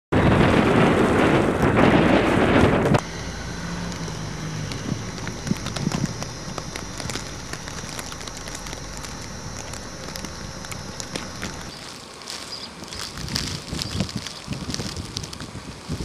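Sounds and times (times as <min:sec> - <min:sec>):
wind blowing across microphone: 0:00.1 - 0:03.1, 0:03.7 - 0:11.8, 0:12.5 - 0:16.0
small ticks: 0:03.6 - 0:15.5.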